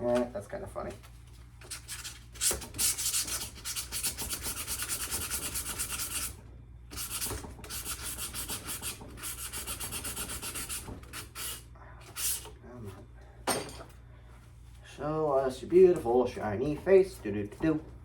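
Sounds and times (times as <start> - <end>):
sandpaper rubbing on metal: 1.6 - 12.4.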